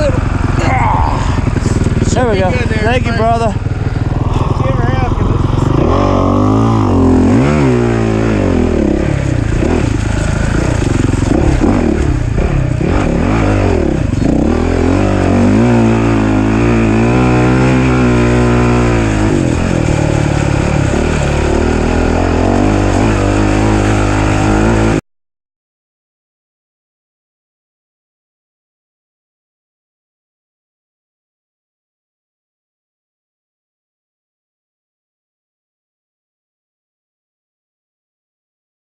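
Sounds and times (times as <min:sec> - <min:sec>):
racing engine revving: 0:00.0 - 0:25.0.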